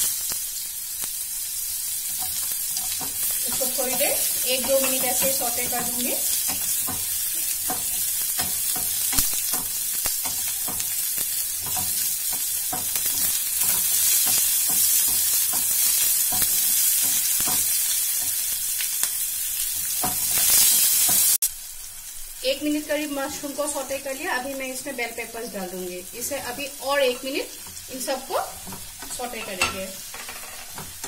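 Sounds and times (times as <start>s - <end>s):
mushrooms sizzling in hot oil: 0.0s - 31.0s
spatula tapping and scraping: 2.0s - 19.0s, 19.6s - 21.4s, 28.5s - 31.0s.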